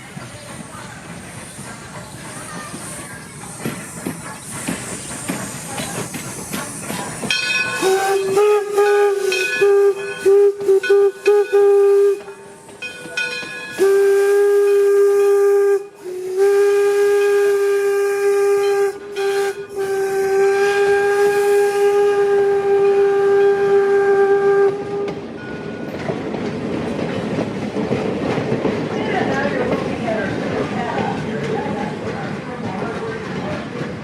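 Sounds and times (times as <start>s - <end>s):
train rumbling: 0.0s - 34.0s
steam whistle blasts: 7.6s - 12.4s, 13.7s - 25.2s.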